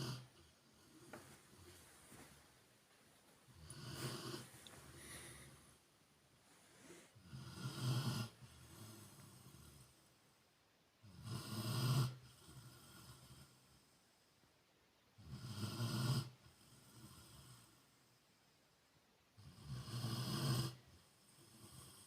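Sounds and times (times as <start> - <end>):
dog snoring: 0.0 - 1.7, 3.5 - 5.7, 6.8 - 10.1, 11.0 - 13.9, 15.2 - 17.9, 19.4 - 22.0.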